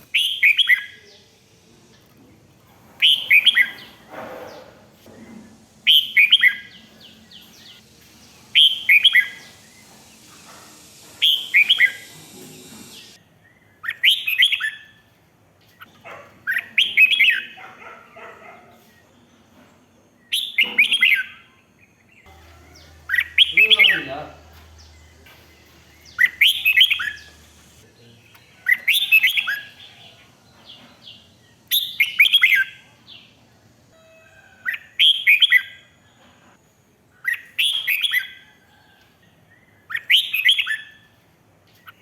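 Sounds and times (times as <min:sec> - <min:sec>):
bird singing whistled notes: 0:00.1 - 0:01.2, 0:05.9 - 0:10.0, 0:11.1 - 0:14.8, 0:20.2 - 0:21.5, 0:22.2 - 0:27.8, 0:31.7 - 0:32.8, 0:39.8 - 0:41.0.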